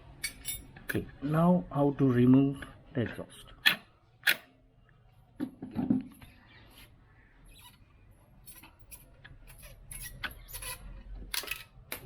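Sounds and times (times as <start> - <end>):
small metal clinks: 0.2 - 0.7.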